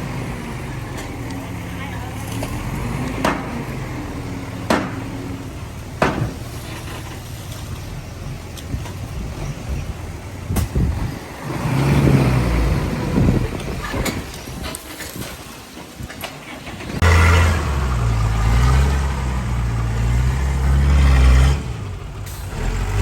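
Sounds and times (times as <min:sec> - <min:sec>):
heavy diesel machinery running: 0:00.0 - 0:23.0.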